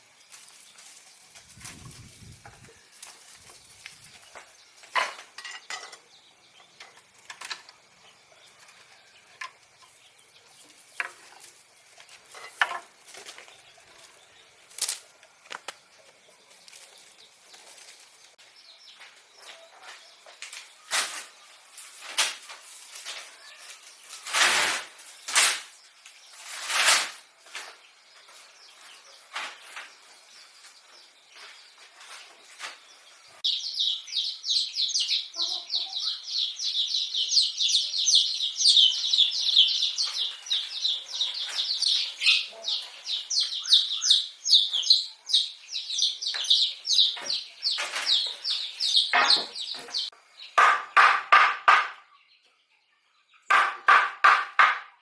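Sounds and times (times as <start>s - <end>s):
objects knocking and clattering: 4.9s - 6.1s, 49.1s - 52.0s.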